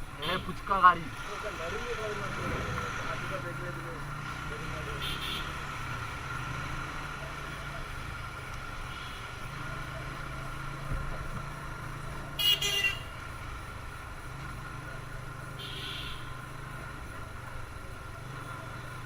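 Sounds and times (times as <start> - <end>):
motorcycle engine running: 0.0 - 19.0
vehicle horn toot: 0.2 - 0.7, 4.8 - 5.7, 12.4 - 13.2, 15.6 - 16.4.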